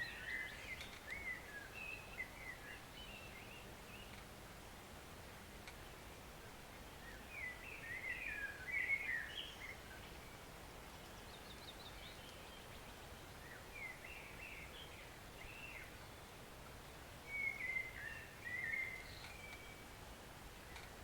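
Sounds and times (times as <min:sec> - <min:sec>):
songbird warbling: 0:17.3 - 0:19.8.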